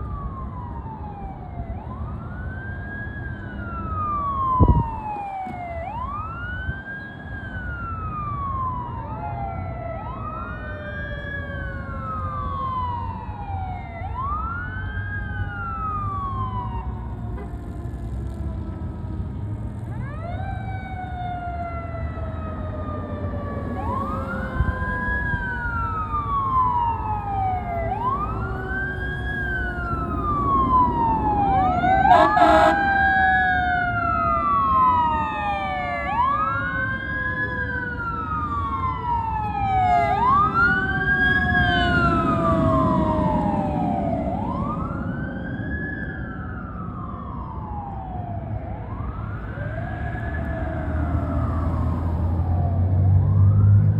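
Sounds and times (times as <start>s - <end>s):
fire engine siren wailing: 0.0s - 53.9s
second siren tone gliding down: 0.0s - 53.9s
truck engine rumble: 11.0s - 53.7s
short loud siren burst: 31.8s - 33.0s.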